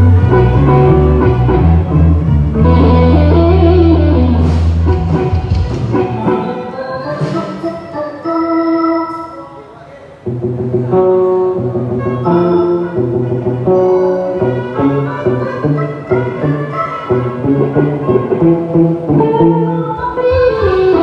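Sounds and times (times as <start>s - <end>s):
loud bass notes: 0.0s - 8.0s
live band through pa system: 0.0s - 21.0s.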